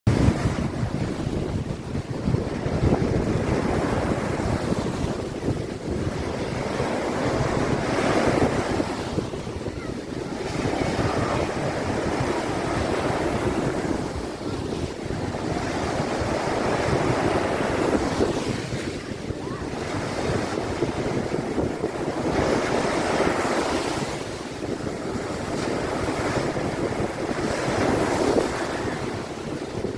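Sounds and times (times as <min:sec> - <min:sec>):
sea surf breaking: 0:00.1 - 0:29.9
wind buffeting microphone: 0:00.1 - 0:29.9.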